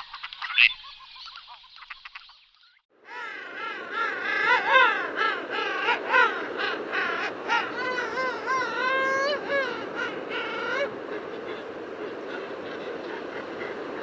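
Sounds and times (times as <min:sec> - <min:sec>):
animals calling over one another: 0:03.1 - 0:14.0.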